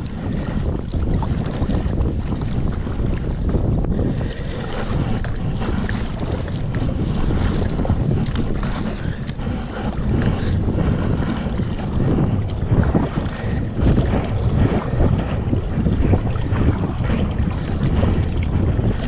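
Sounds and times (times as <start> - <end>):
water lapping against kayak: 0.0 - 19.0
wind buffeting microphone: 0.0 - 19.0.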